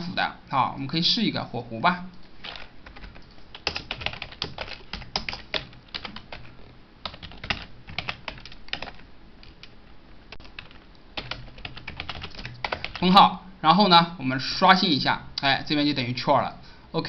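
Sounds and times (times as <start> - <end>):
keyboard typing: 2.1 - 13.0.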